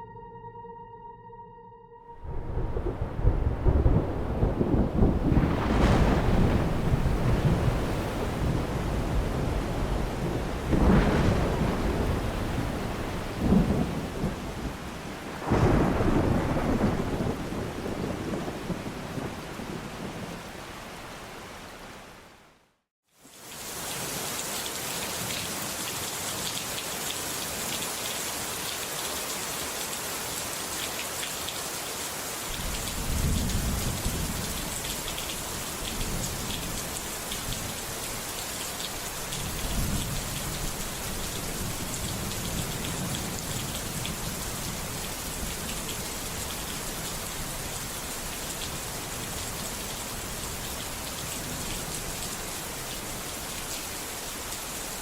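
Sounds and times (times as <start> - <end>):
deep thunder rumbling: 2.2 - 14.7, 15.4 - 20.4, 32.5 - 37.7
steady rain falling: 2.3 - 55.0.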